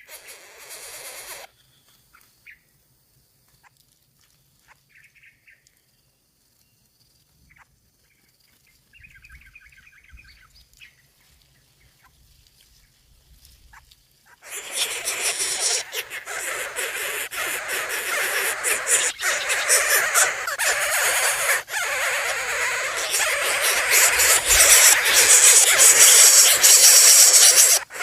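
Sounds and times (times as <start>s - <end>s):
faint rapid bird chirps: 4.3s - 13.0s, 13.6s - 28.0s
loud dense hiss: 22.6s - 28.0s.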